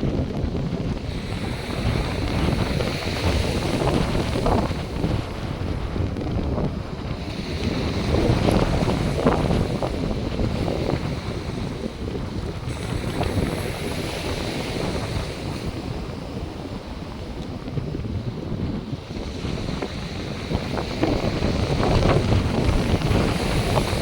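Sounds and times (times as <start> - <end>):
surf washing onto sand: 0.0 - 24.0
wind buffeting microphone: 0.0 - 24.0.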